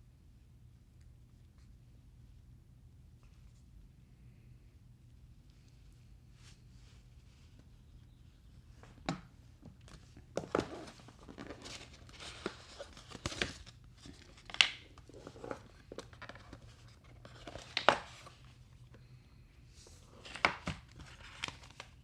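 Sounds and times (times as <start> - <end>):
packaging rustling and crinkling: 9.8 - 18.6, 20.1 - 22.0.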